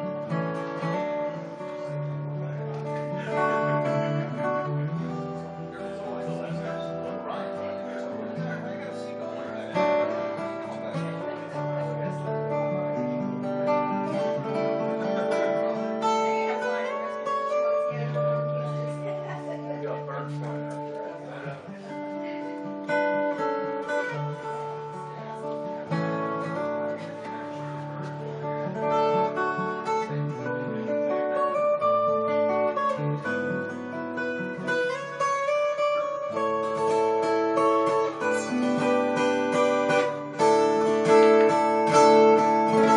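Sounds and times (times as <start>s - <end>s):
solo acoustic guitar: 0.0s - 42.9s.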